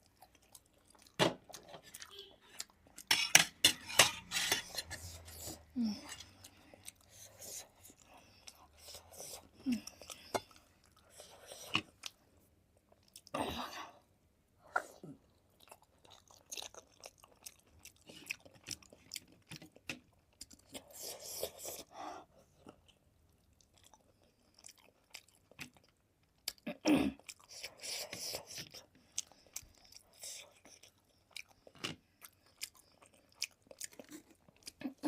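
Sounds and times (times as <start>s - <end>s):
chewing dumpling: 0.0s - 13.4s, 14.6s - 35.0s.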